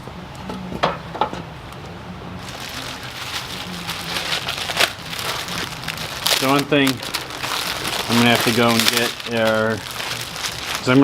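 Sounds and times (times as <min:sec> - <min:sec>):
rustling crinkling handling noise: 0:02.4 - 0:11.0.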